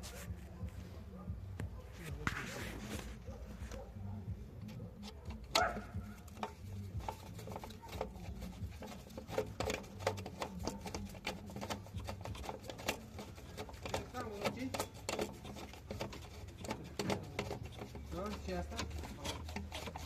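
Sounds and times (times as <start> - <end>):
tools clicking and knocking: 4.6 - 20.0.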